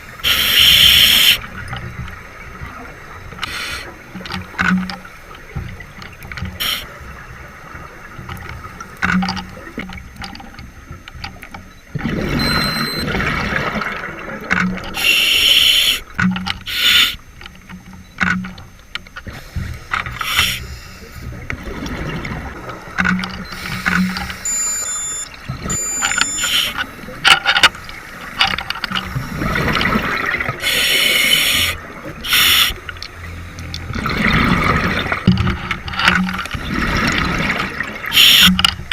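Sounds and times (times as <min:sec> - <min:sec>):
regulator hissing inhalations: 0:00.2 - 0:01.4, 0:15.0 - 0:16.1, 0:16.7 - 0:17.2, 0:19.3 - 0:21.3, 0:30.6 - 0:32.8
exhaled bubbles rushing: 0:12.0 - 0:15.0, 0:21.5 - 0:22.9, 0:29.2 - 0:30.6, 0:33.9 - 0:35.3, 0:36.5 - 0:38.2.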